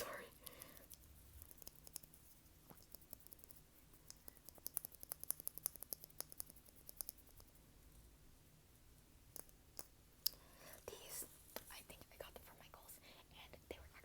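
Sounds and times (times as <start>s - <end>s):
light clicks and taps: 0.4s - 7.5s.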